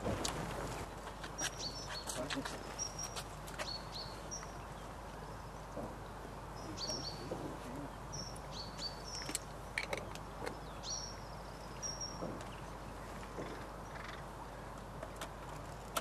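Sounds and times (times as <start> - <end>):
outdoor background noise: 0.0 - 16.0
small bird chirping: 1.3 - 5.7, 6.6 - 14.3.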